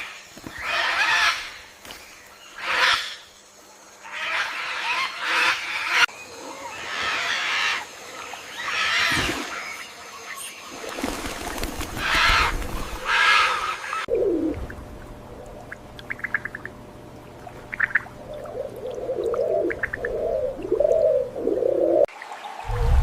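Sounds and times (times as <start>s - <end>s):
dove-like cooing: 11.6s - 16.8s, 17.4s - 22.1s.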